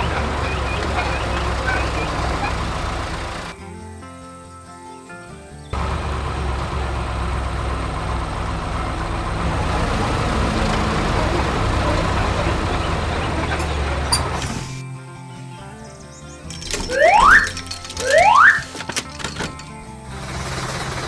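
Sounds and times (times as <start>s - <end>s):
diesel engine droning: 0.0s - 3.6s, 5.7s - 14.8s, 16.5s - 21.0s
sharp metallic clack: 16.5s - 19.9s.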